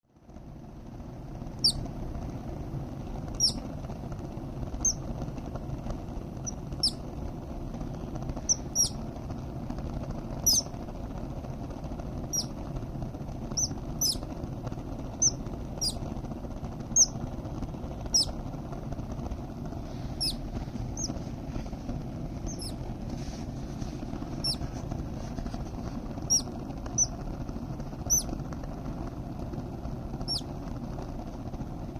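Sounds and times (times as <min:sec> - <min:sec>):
low background hum: 0:00.1 - 0:31.9
parrot chicks chirping: 0:01.6 - 0:01.8, 0:03.3 - 0:03.7, 0:04.8 - 0:05.1, 0:06.4 - 0:07.0, 0:08.4 - 0:09.0, 0:10.4 - 0:10.8, 0:12.3 - 0:12.6, 0:13.5 - 0:14.3, 0:15.1 - 0:16.0, 0:16.9 - 0:17.2, 0:18.1 - 0:18.4, 0:20.0 - 0:21.2, 0:22.4 - 0:22.8, 0:24.3 - 0:24.7, 0:26.1 - 0:27.2, 0:28.0 - 0:28.4, 0:30.2 - 0:30.5.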